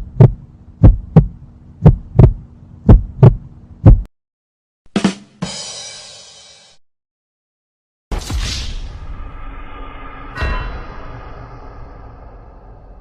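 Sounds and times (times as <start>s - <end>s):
heartbeat thumps: 0.0s - 4.1s
low hum: 0.0s - 4.1s, 8.7s - 13.0s
short hit: 8.1s - 13.0s.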